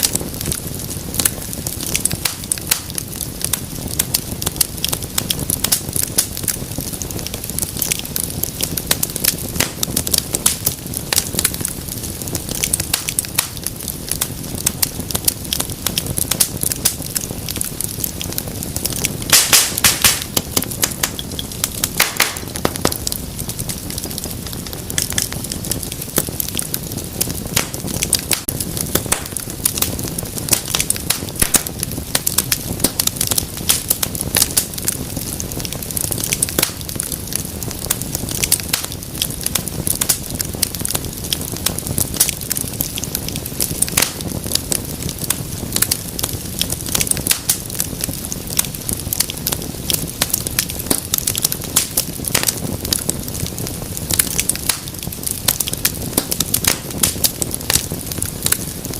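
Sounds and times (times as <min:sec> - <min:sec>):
flames rushing: 0:00.0 - 0:58.9
wood fire crackling: 0:00.0 - 0:58.9.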